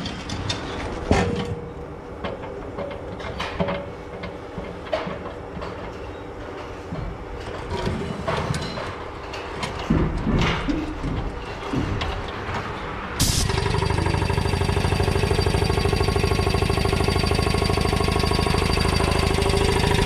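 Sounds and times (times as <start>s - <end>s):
machine running: 13.2s - 20.0s.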